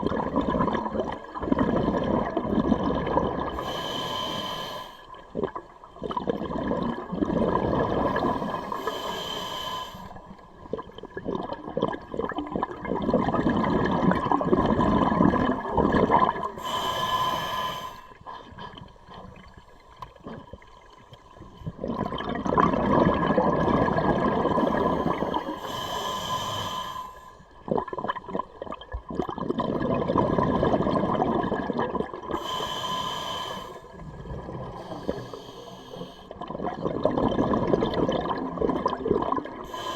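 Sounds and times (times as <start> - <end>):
diver breathing through regulator: 3.5 - 5.2, 7.9 - 10.4, 16.4 - 18.7, 24.5 - 27.5, 32.3 - 36.4, 39.6 - 39.9.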